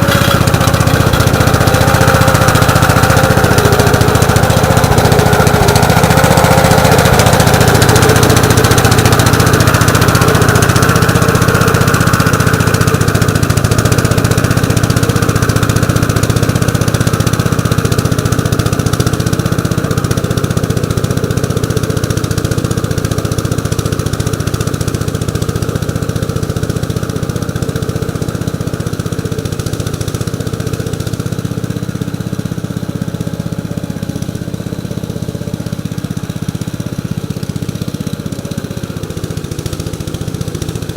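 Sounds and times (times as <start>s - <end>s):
single-cylinder engine running: 0.0s - 40.9s.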